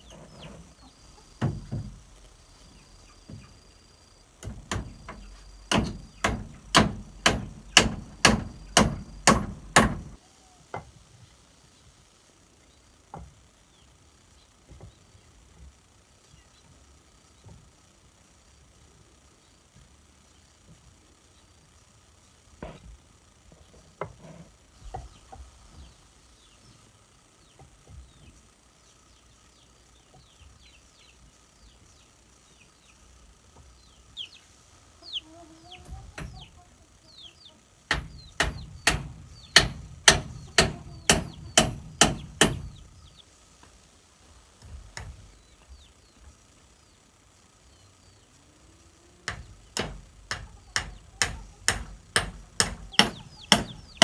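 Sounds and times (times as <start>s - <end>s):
chickens clucking: 0.0s - 4.2s, 33.5s - 43.3s, 48.4s - 54.0s
small birds chirping: 0.0s - 10.6s, 24.8s - 54.0s
rapid tool strikes on wood: 4.4s - 10.2s, 37.9s - 43.2s, 44.6s - 45.4s, 49.3s - 54.0s.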